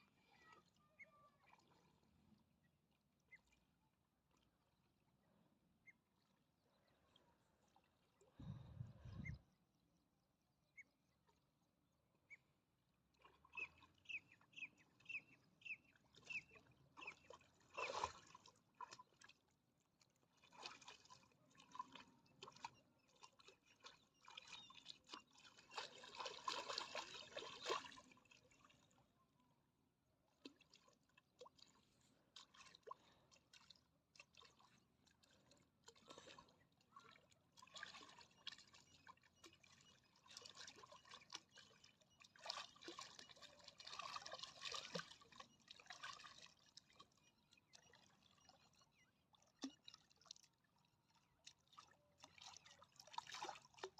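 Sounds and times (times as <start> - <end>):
water trickling and splashing: 12.9 - 29.0, 30.3 - 53.9.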